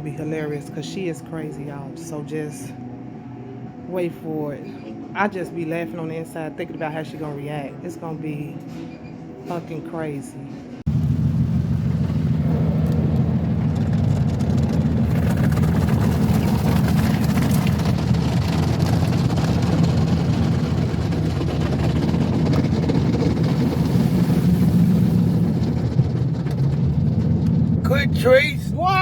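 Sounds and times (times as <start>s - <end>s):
car wash machine rumble: 10.9s - 29.0s.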